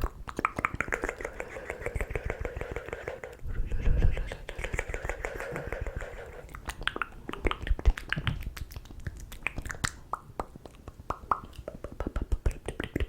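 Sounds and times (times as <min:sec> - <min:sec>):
lip pops: 0:00.0 - 0:03.4, 0:06.4 - 0:13.0
wet tongue clicks: 0:00.0 - 0:13.0.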